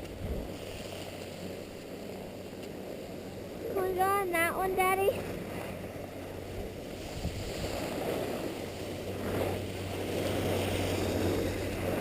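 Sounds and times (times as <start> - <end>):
wind rushing over microphone: 0.0 - 12.0
skis sliding over snow: 7.0 - 12.0.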